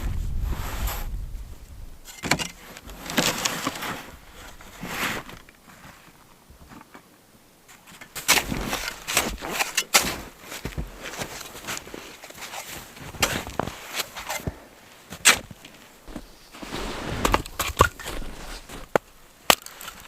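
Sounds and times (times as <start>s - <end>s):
wind buffeting microphone: 0.0s - 2.1s
camp gear rustling and knocking: 2.0s - 20.0s.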